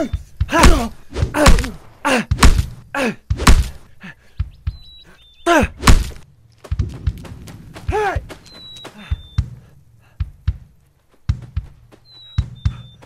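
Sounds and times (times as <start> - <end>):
punch thuds: 0.4 - 3.8, 5.8 - 8.5.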